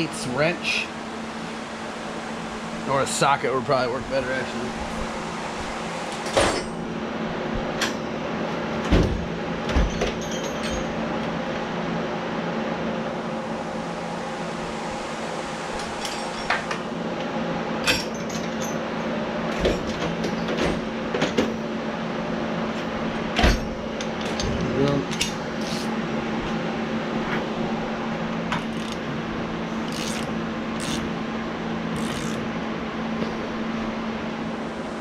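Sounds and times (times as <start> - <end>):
background hum: 22.7 - 35.0
wrench and metal parts clicking: 25.1 - 25.9, 28.6 - 29.0, 29.9 - 31.0, 32.0 - 32.4.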